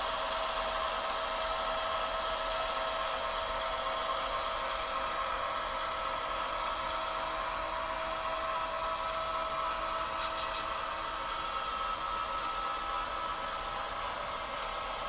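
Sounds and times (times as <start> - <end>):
model locomotive hum and whine: 0.0 - 15.0.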